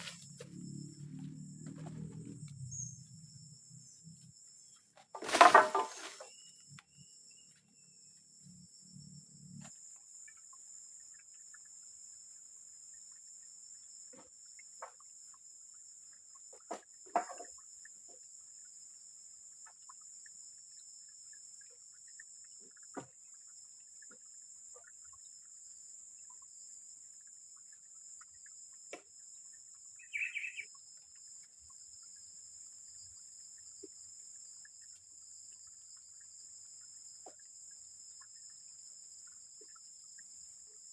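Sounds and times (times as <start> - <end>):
high-pitched insect drone: 0.0 - 40.9
small ticks and knocks: 14.0 - 15.5, 16.1 - 18.3, 21.6 - 25.2, 28.2 - 29.4, 37.1 - 38.5.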